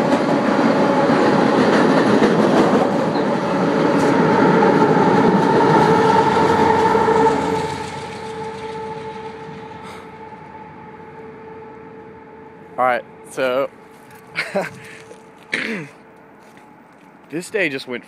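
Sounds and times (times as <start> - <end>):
train clattering and rumbling: 0.0 - 12.5
steady whine: 0.0 - 17.4.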